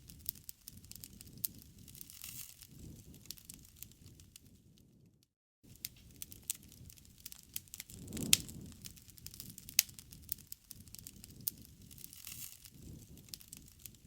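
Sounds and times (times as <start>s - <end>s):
low rumble of flame: 0.0s - 14.0s
wood fire crackling: 0.0s - 14.0s
loud fire pop: 7.6s - 10.3s.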